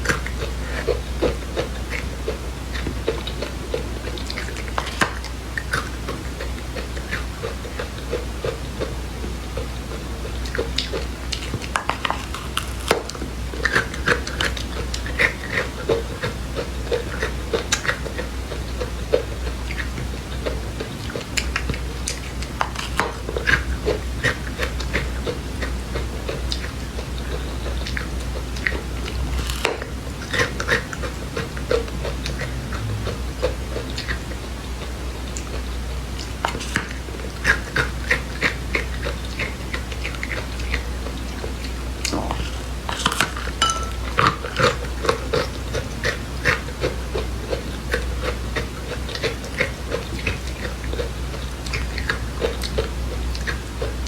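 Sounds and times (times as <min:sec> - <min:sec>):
chewing dry seeds: 0:00.0 - 0:54.0
low hum: 0:31.2 - 0:34.8.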